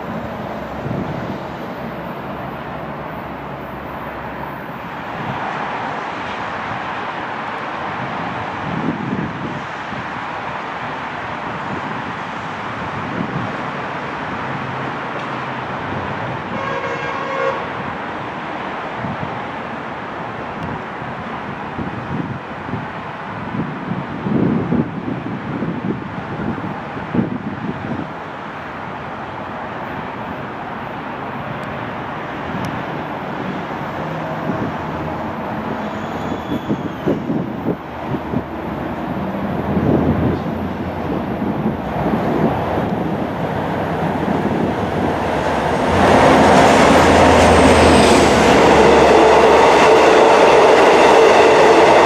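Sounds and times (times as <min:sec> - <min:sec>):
train rumble: 0:00.0 - 0:52.0
wind noise: 0:00.0 - 0:52.0
train air horn blast: 0:16.5 - 0:17.8.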